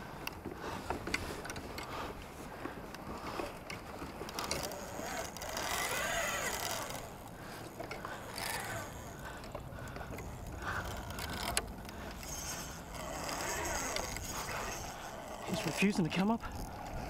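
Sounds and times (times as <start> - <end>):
fishing reel ratcheting: 4.2 - 17.0
fishing reel whine: 4.2 - 17.0.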